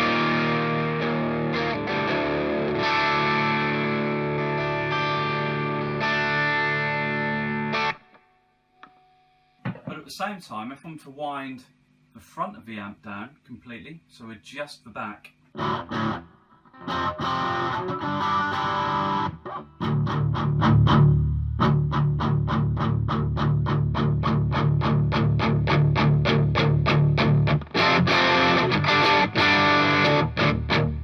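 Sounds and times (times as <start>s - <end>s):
distorted electric guitar: 0.0s - 9.0s, 15.6s - 31.0s.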